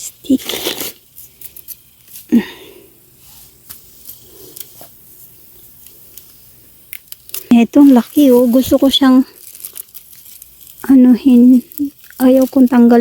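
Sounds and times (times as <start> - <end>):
plants rustling: 0.0 - 13.0.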